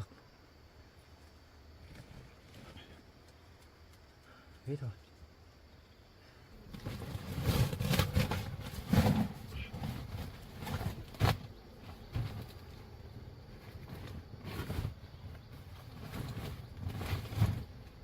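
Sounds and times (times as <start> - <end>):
rustling and crunching in dry brush: 6.6 - 18.0.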